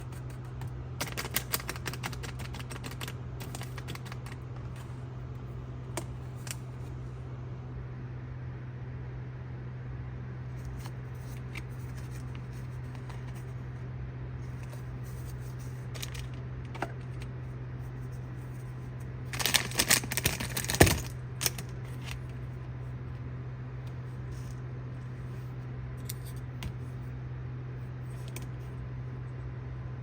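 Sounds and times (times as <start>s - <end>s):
packaging handling clicks: 0.0s - 4.8s, 15.9s - 17.3s, 19.3s - 22.3s
steady low hum: 0.0s - 30.0s
packaging crinkling and rustling: 14.6s - 17.3s, 19.3s - 22.4s.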